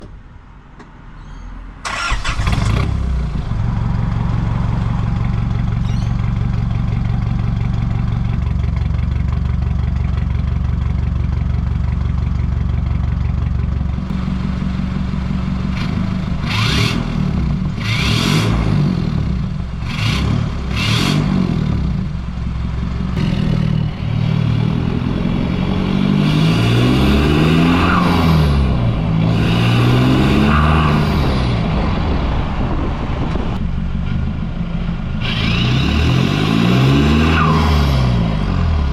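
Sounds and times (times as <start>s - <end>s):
diesel engine revving: 1.8s - 9.9s, 13.9s - 38.9s
diesel engine starting and idling: 1.8s - 26.4s.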